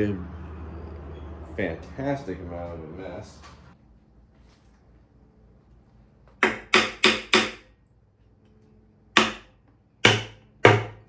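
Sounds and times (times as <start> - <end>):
hammer striking metal: 6.4 - 7.6, 9.2 - 11.0.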